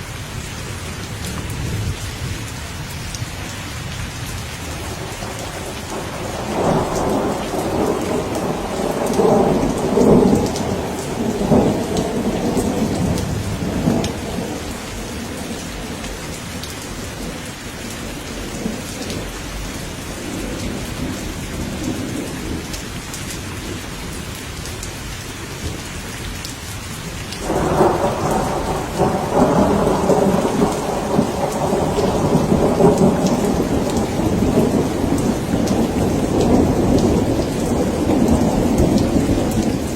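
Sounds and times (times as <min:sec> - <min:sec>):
steady rain falling: 0:00.0 - 0:39.9
thunder rolling: 0:04.7 - 0:22.8, 0:27.4 - 0:39.9.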